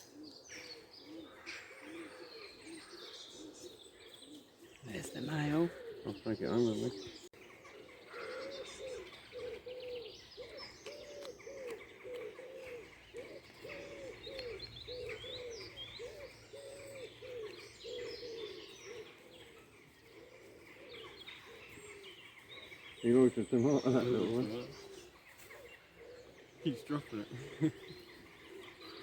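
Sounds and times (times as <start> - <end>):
birds calling low arched notes: 0.0 - 29.0
songbirds chirping: 0.0 - 29.0.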